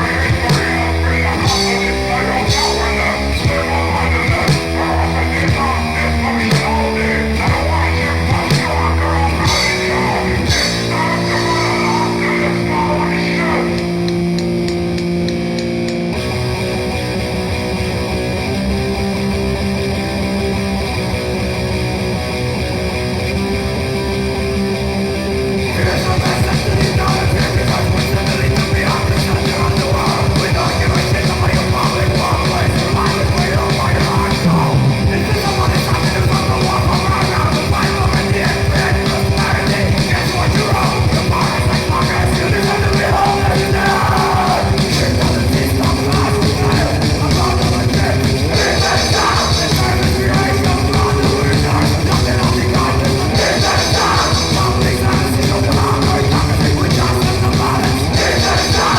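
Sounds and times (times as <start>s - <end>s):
person yelling vocals: 0.0s - 14.0s, 39.5s - 56.3s
fast pounding drums: 0.0s - 16.3s, 25.7s - 58.9s
distorted guitar and bass: 0.0s - 58.9s
grindcore music: 0.0s - 58.9s.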